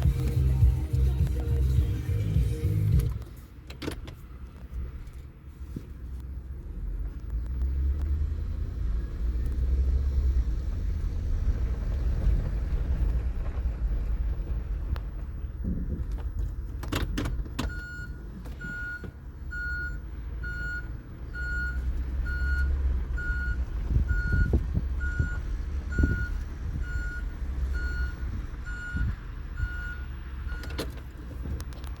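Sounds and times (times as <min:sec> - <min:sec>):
low rumble: 0:06.5 - 0:16.8
electronic warning beeps: 0:17.7 - 0:30.7.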